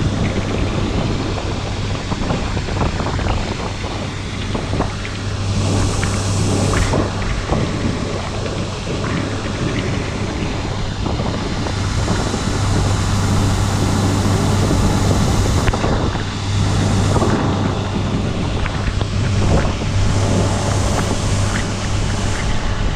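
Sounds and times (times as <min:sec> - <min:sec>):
combine harvester engine hum: 0:00.0 - 0:22.9.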